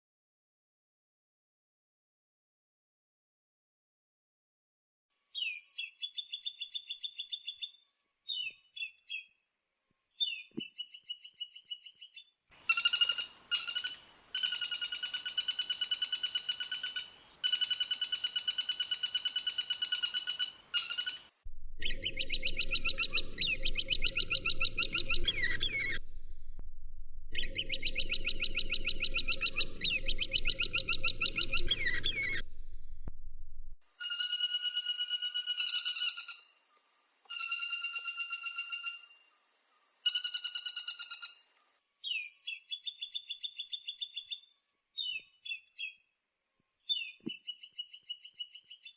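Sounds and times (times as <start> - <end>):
woodpecker trilled rattles: 12.7 - 26.0.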